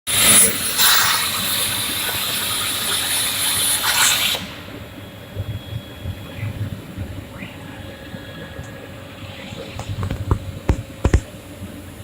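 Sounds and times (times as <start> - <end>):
plasma torch hissing: 0.2 - 1.6.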